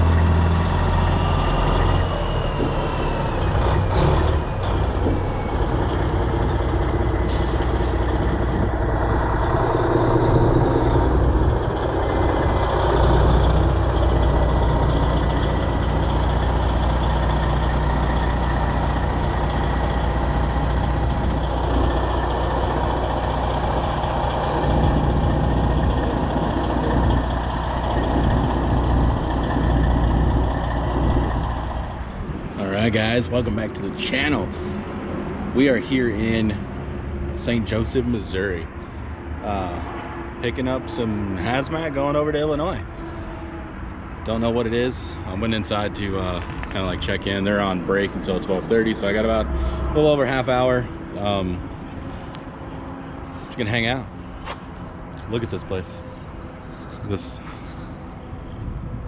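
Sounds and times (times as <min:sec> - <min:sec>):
truck diesel engine rumbling: 0:00.0 - 0:59.0.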